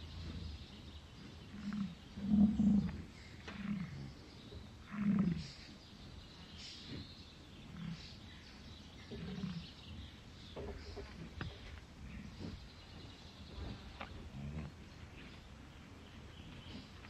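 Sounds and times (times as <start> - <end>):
bison grunting: 0.0 - 5.7, 6.5 - 8.4, 9.0 - 10.1, 10.7 - 15.5.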